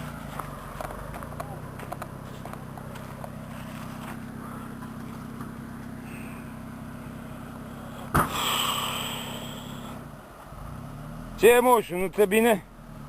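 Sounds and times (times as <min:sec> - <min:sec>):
engine running at low revs: 0:00.0 - 0:13.0
sharp knock: 0:08.1 - 0:08.6.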